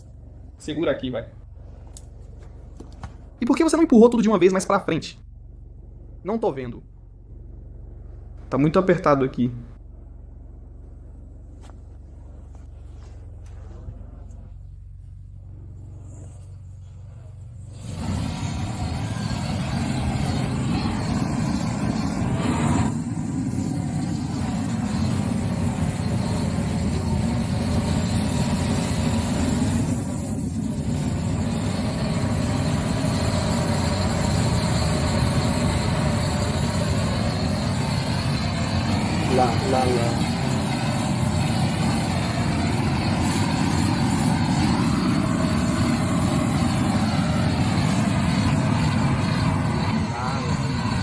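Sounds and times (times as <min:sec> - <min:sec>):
vehicle engine idling: 0:00.0 - 0:51.0.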